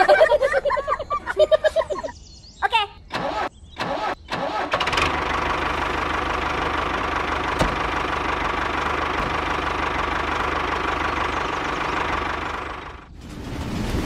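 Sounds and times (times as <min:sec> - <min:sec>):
tractor engine knocking: 0:04.7 - 0:13.1.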